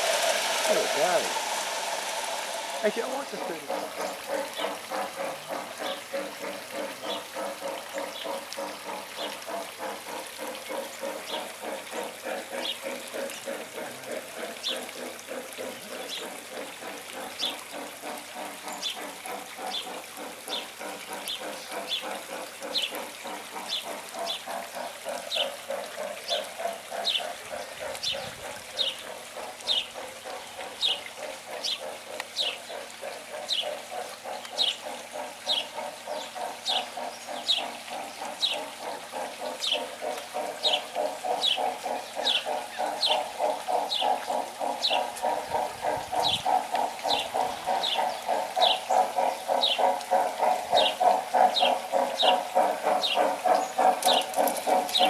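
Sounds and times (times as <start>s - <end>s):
fast rattling background: 0.0s - 55.0s.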